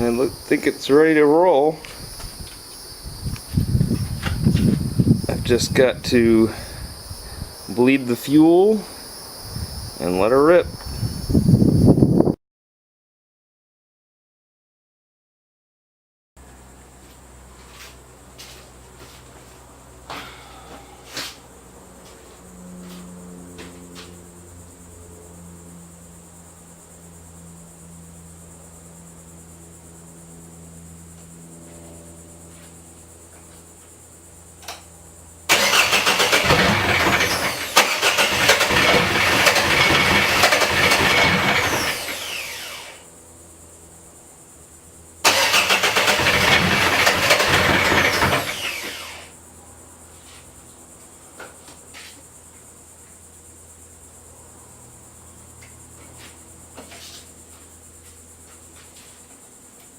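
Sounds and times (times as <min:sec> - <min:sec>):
diesel engine cranking: 0:35.5 - 0:43.0, 0:45.2 - 0:49.3.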